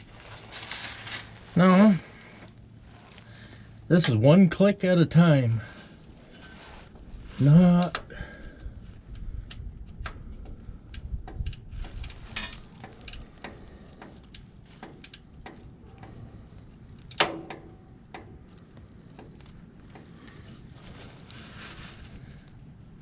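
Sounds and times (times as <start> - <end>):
ratchet wrench clicking: 10.9 - 15.6.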